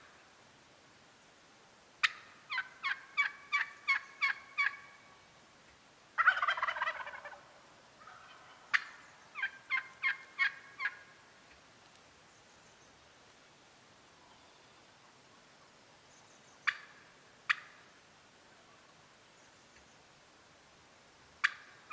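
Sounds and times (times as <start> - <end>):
turkey gobbling: 2.0 - 5.1, 6.2 - 11.1, 16.6 - 17.9, 21.4 - 21.9
turkey clucks and yelps: 2.0 - 5.2, 6.2 - 11.1, 16.6 - 17.9, 21.4 - 21.9.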